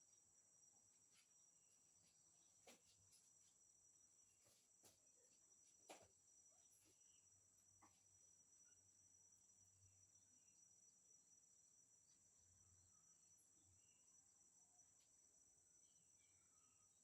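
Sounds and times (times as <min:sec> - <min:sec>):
crickets droning: 0:00.0 - 0:17.0.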